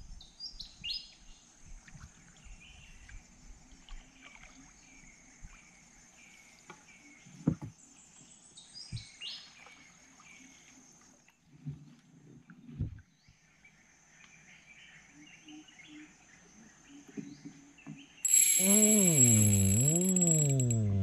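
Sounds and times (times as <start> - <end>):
high insect drone: 18.3 - 21.0.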